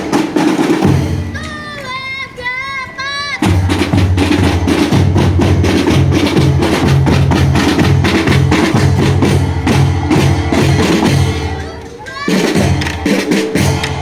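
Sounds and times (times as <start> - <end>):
rapid snare drumming: 0.0 - 1.4, 3.4 - 11.6, 12.2 - 14.0
bass drums: 3.4 - 11.6.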